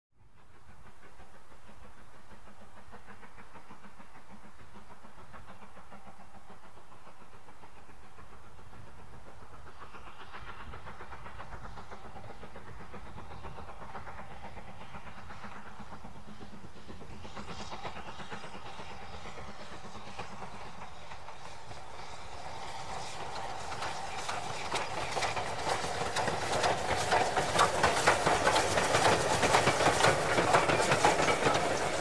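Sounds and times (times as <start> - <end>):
train rumbling: 0.2 - 32.0.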